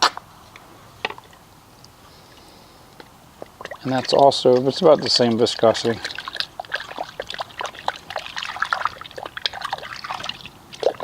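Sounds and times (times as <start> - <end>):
liquid pouring and gurgling: 3.5 - 11.0.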